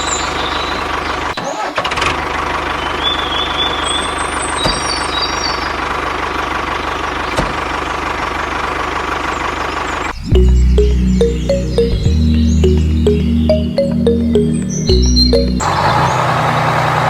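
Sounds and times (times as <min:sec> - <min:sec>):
music: 0:10.3 - 0:15.6.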